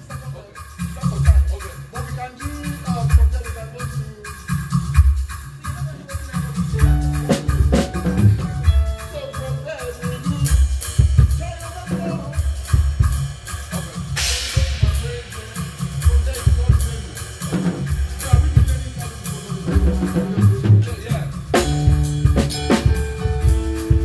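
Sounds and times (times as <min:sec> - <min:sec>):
kick and snare beat: 0:00.0 - 0:24.0
band playing: 0:06.5 - 0:12.8, 0:13.9 - 0:24.0
cymbal crash: 0:12.3 - 0:19.6.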